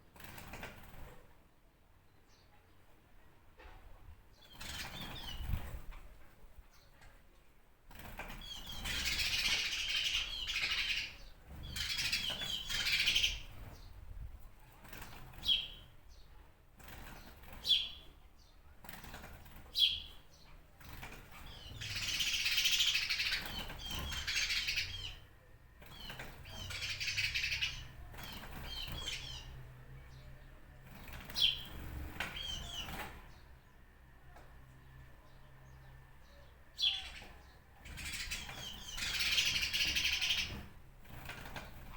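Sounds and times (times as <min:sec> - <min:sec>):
songbirds chirping phrases: 0:14.9 - 0:41.9.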